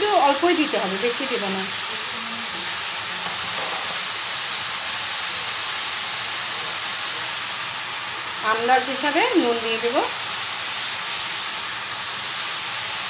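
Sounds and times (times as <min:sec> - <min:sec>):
gourd sizzling in hot oil: 0:00.0 - 0:13.0.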